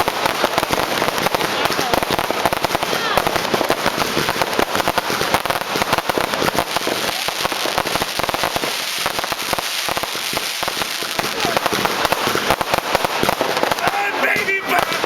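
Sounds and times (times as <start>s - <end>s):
fireworks banging and crackling: 0.0s - 15.0s.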